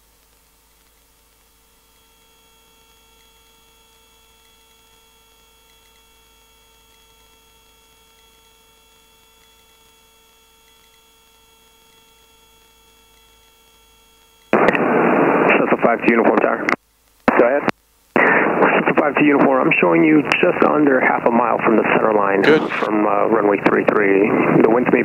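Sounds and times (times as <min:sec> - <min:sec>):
helicopter hum with whining tones: 0:01.4 - 0:16.1, 0:18.2 - 0:25.0.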